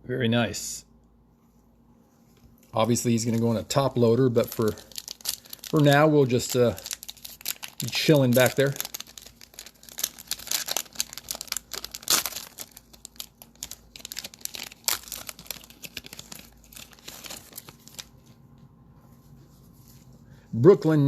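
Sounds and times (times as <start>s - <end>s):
trading cards crinkling: 2.6s - 18.4s.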